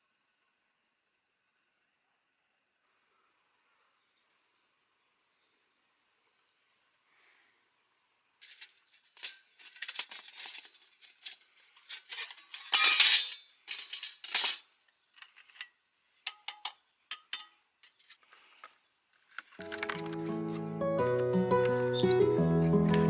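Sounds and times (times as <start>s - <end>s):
short ringing clinks: 8.4s - 14.6s
metal camping gear clinking: 8.4s - 23.0s.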